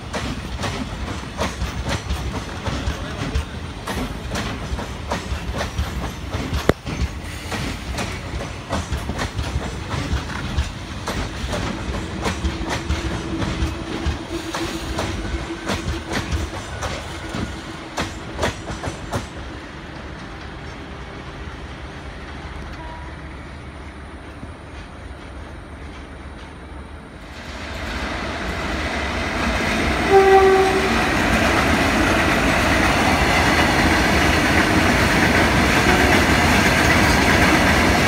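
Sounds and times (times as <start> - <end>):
train wheels clacking: 0.0 - 21.3, 27.3 - 38.0
train rumble: 0.0 - 38.0.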